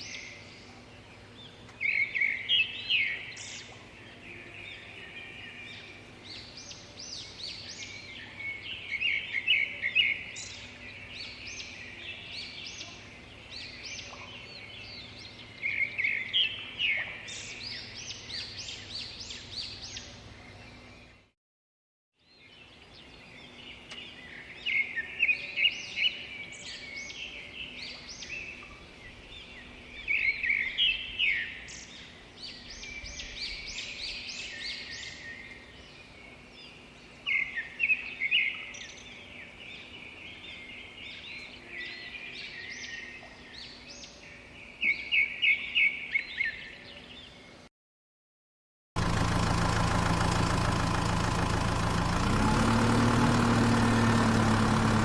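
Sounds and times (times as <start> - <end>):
songbirds chirping and singing: 0.0 - 21.3, 22.2 - 47.7
loud engine running: 49.0 - 55.0.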